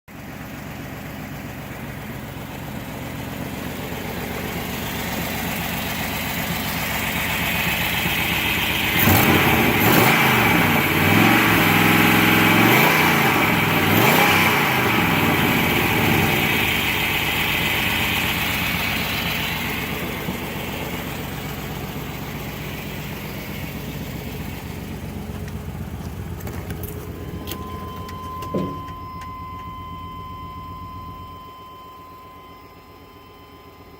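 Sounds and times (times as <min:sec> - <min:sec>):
car engine idling and revving: 0:00.1 - 0:33.9
steady beep: 0:27.2 - 0:33.9
short knock: 0:28.0 - 0:29.0.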